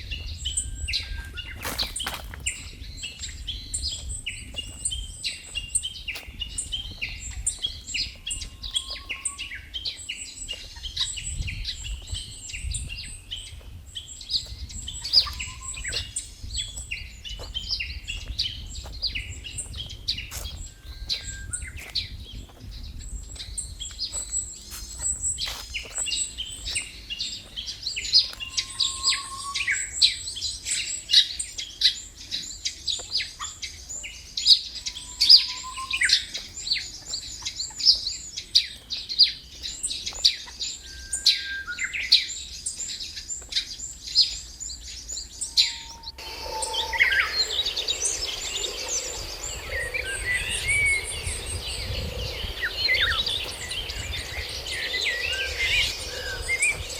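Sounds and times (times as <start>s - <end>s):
birds chirping: 0.0s - 56.9s
short low bird whistles: 35.0s - 36.3s.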